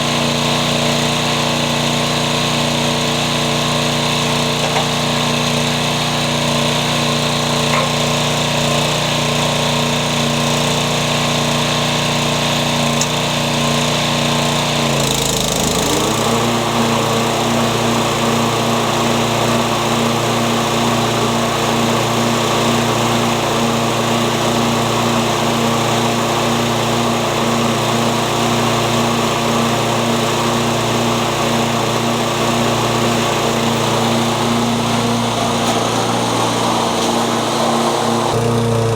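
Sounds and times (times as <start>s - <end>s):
lawn mower engine running: 0.0s - 38.9s.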